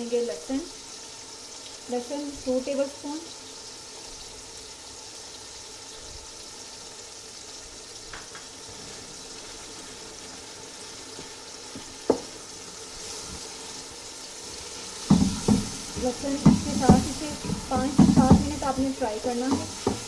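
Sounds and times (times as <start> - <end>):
chicken sizzling in hot fat: 0.0 - 20.0
spoon knocking against pot: 15.0 - 20.0.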